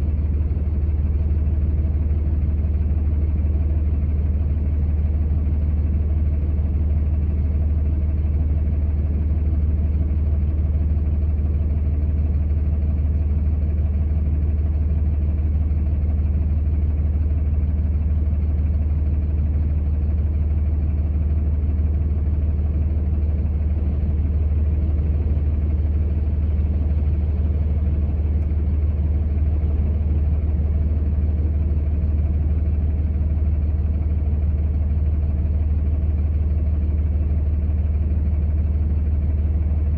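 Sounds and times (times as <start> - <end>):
vehicle engine running: 12.0 - 39.9.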